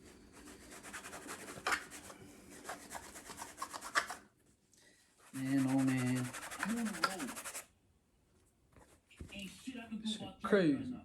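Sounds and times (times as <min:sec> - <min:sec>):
scrubbing wet cap brim: 0:00.6 - 0:04.2, 0:05.4 - 0:07.7.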